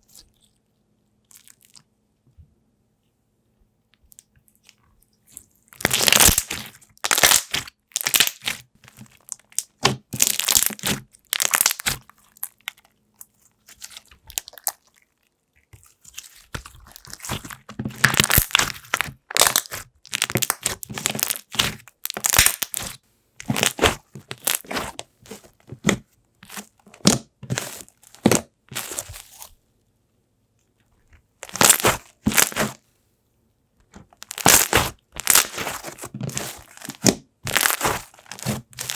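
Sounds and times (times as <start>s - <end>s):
slime squished by hand: 5.8s - 15.0s, 15.7s - 29.6s, 31.4s - 32.8s, 34.2s - 38.9s.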